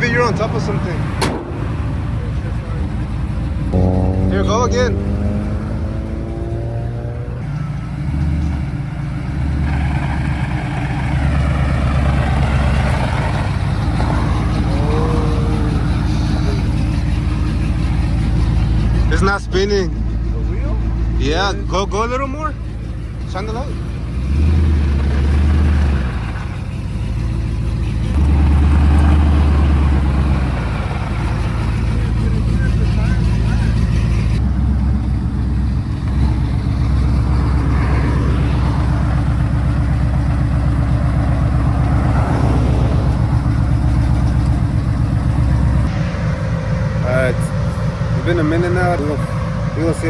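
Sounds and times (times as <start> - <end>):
pickup truck engine revving: 0.0 - 50.0.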